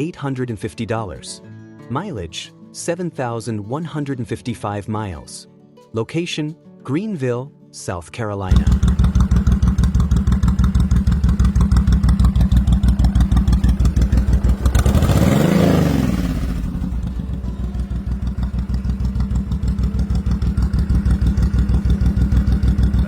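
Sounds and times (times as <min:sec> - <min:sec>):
motorcycle engine idling: 0:08.5 - 0:23.0
motorcycle engine revving: 0:08.5 - 0:23.0.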